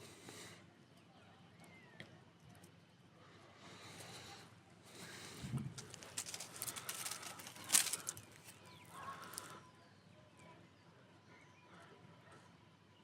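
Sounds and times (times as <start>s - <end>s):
campfire wood crackling and popping: 5.7s - 9.5s.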